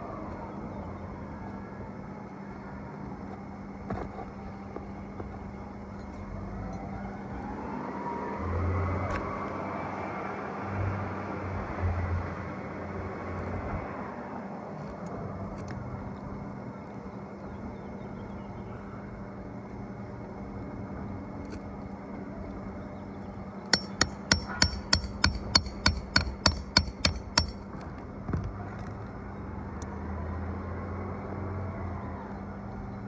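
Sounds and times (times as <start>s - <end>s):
nails hammered into shingles: 23.8s - 27.7s.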